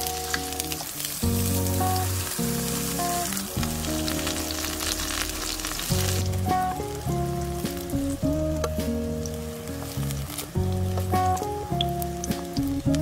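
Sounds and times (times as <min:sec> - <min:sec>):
background music: 0:00.0 - 0:13.0
eggplant sizzling in oil: 0:00.0 - 0:13.0.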